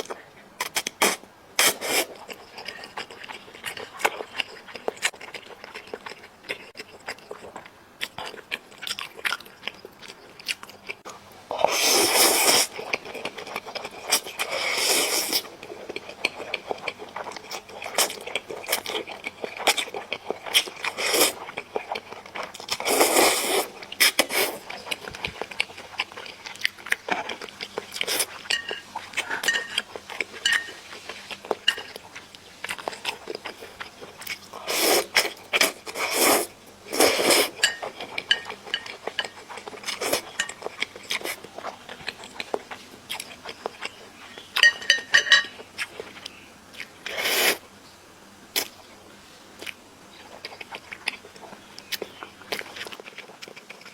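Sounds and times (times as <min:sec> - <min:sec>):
chewing and biting chicken: 0:49.6 - 0:53.9.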